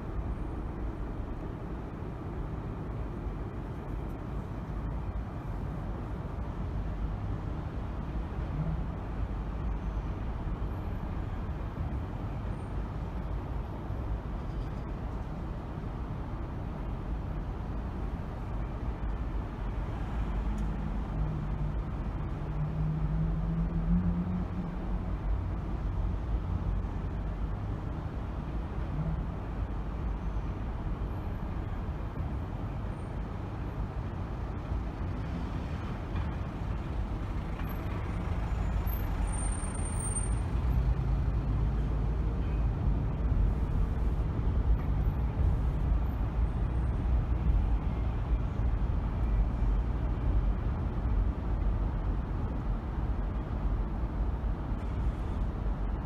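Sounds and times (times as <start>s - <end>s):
car driving road and engine noise: 0.0s - 56.0s.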